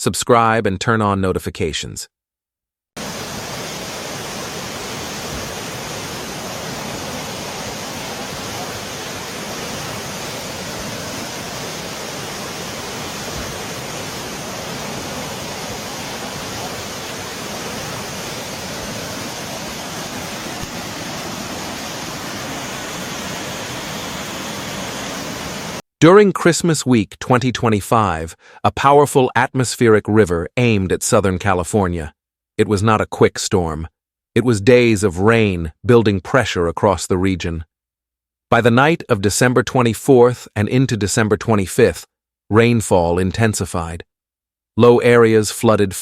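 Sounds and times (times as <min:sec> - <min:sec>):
water rushing: 0:03.0 - 0:25.8.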